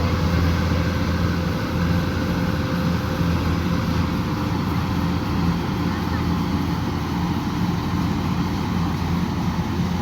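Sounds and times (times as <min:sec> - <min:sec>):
harvester engine droning: 0:00.0 - 0:10.0.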